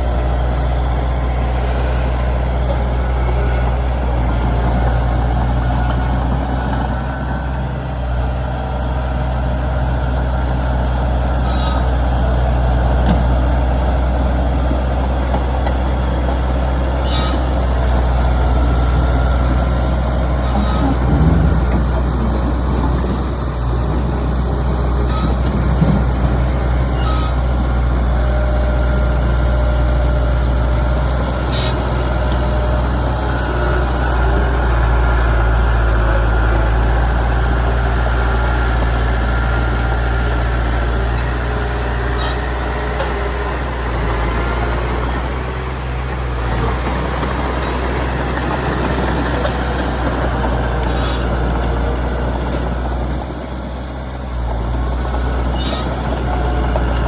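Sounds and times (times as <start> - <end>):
diesel engine rumbling: 0.0 - 57.0.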